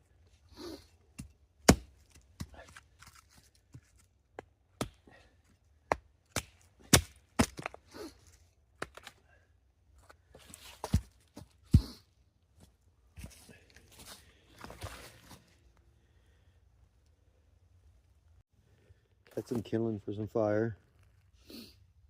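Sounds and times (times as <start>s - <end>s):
wood chopping strikes: 1.2s - 2.7s, 4.4s - 5.1s, 5.8s - 7.8s.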